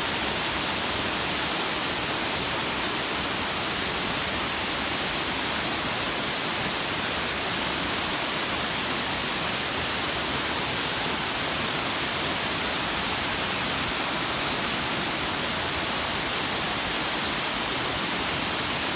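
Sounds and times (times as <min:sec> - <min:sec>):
waterfall roaring: 0:00.0 - 0:18.9.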